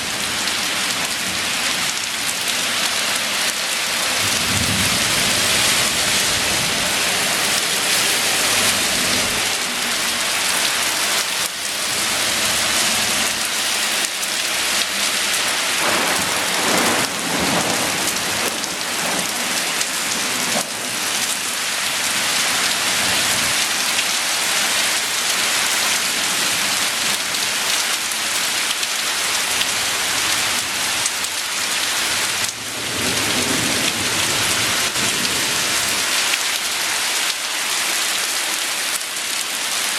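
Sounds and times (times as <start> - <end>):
heavy rain on surfaces: 0.0 - 39.9
low rumble of thunder: 4.2 - 7.6, 15.8 - 21.1.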